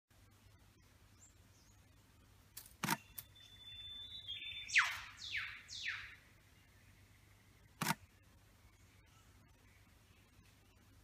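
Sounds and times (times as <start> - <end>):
bird whistling call: 3.0 - 6.2
sharp clicks: 7.8 - 8.0.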